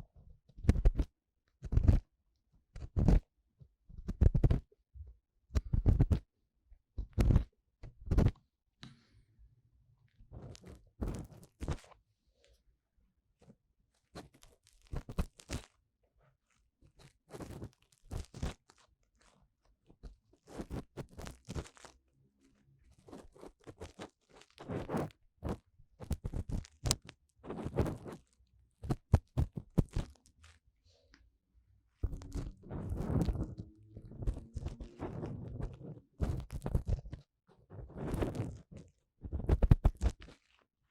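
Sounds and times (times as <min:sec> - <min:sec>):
tool scraping microphone ear: 0:24.6 - 0:30.2, 0:32.0 - 0:40.3.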